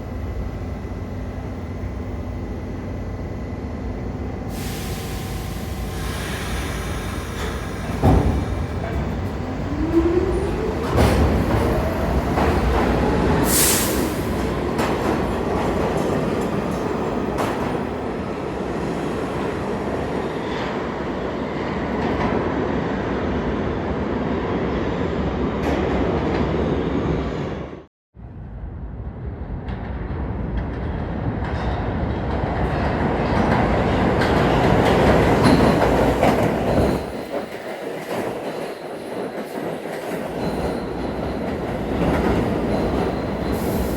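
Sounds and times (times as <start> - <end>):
subway train rumbling on rails: 0.0 - 43.9
high wheel squeal: 42.4 - 43.9.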